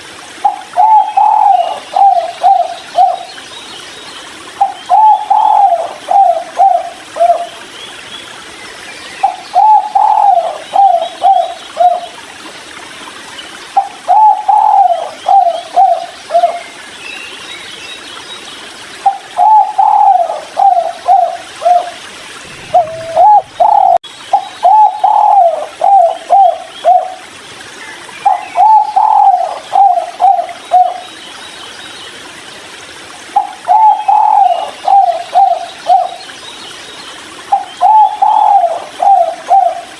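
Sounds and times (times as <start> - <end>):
dove cooing: 0.4 - 3.3, 4.6 - 7.5, 9.2 - 12.0, 13.8 - 16.6, 19.1 - 27.2, 28.3 - 31.0, 33.4 - 36.1, 37.5 - 39.9.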